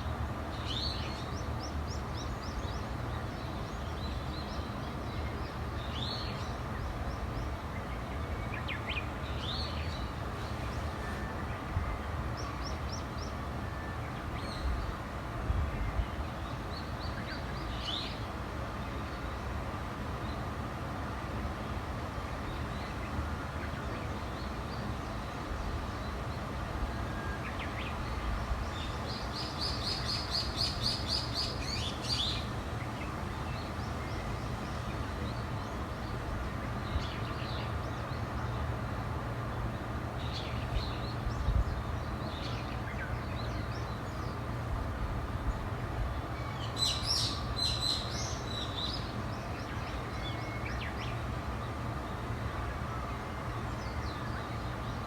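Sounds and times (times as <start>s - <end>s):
birds singing: 22.5s - 44.6s, 45.2s - 55.0s.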